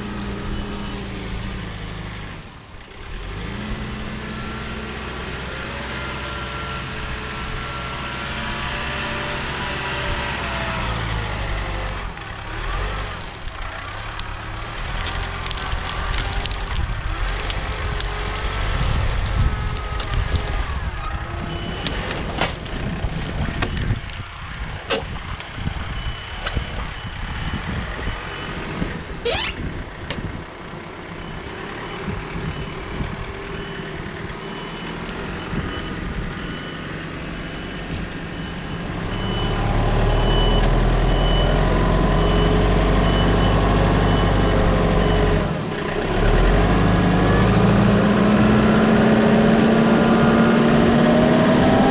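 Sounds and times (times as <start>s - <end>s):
engine low rumble: 0.0s - 51.9s
crackling and rustling: 10.6s - 25.6s
reversing alarm beeping: 31.8s - 45.5s.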